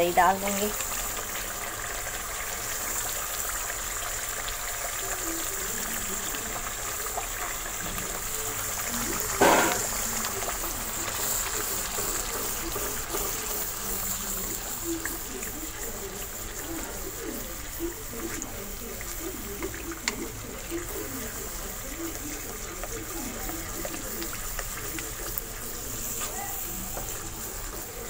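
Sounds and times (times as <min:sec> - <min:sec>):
sizzling and bubbling in a frying pan: 0:00.0 - 0:28.0
wooden spatula stirring: 0:11.9 - 0:28.0.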